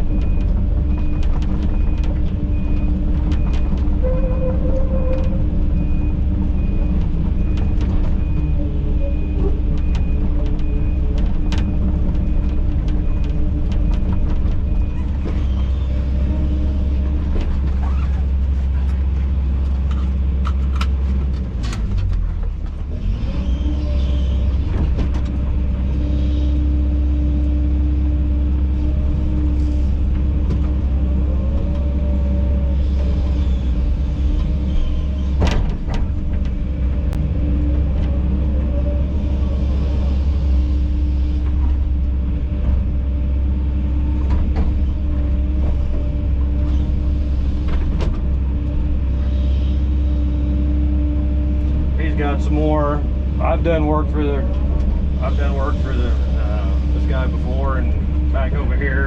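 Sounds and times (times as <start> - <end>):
knocks and clunks: 0.0 - 26.0, 28.7 - 39.4, 41.4 - 49.1
excavator diesel engine rumbling: 0.0 - 59.0.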